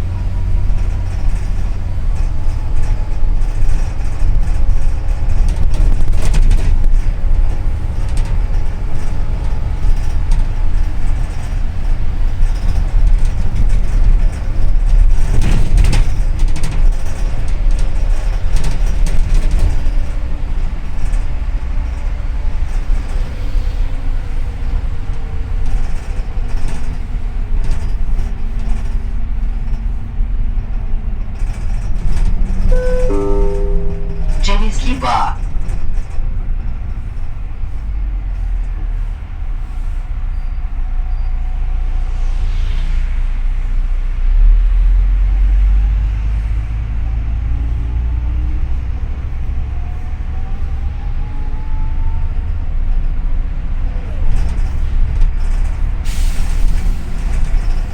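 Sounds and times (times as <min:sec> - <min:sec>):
bus engine rumble: 0:00.0 - 0:33.6, 0:36.9 - 0:57.9
faint whine: 0:32.7 - 0:35.4.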